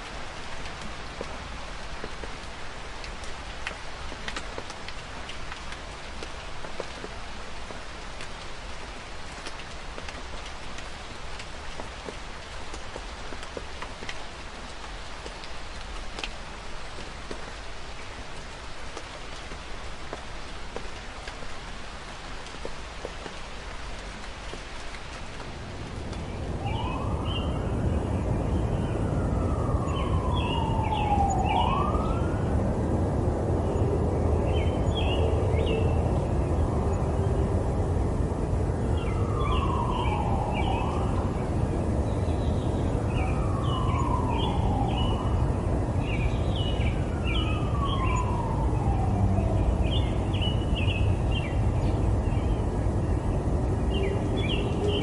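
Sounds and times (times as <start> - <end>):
city traffic rumble: 0.0 - 55.0
rain hissing: 0.0 - 55.0
emergency siren wailing: 25.8 - 51.0, 53.9 - 55.0.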